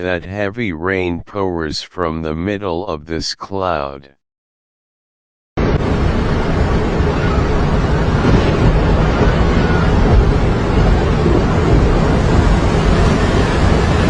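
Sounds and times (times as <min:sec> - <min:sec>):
heavy rain: 0:05.6 - 0:14.0
wind buffeting microphone: 0:05.8 - 0:14.0.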